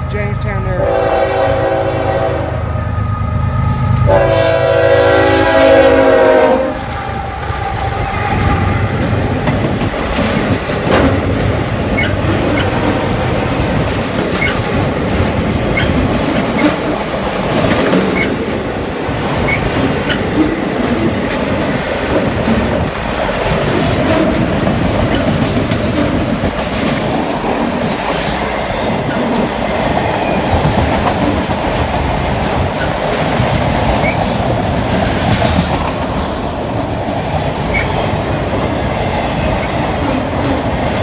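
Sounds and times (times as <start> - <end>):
train rumbling past: 0.0 - 41.0
locomotive air horn blasts: 0.6 - 3.0, 4.0 - 6.9
wheels clacking over rail joints: 7.4 - 41.0.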